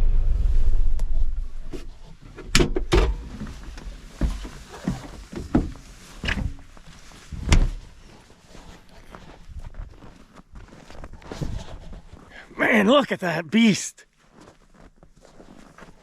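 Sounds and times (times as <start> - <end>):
knocks and thunks: 1.8 - 6.6, 7.3 - 7.8.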